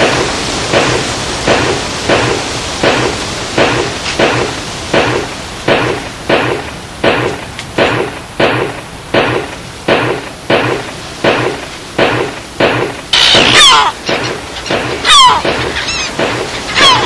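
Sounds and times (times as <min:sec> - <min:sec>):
loud sharp strikes: 0:00.0 - 0:17.0.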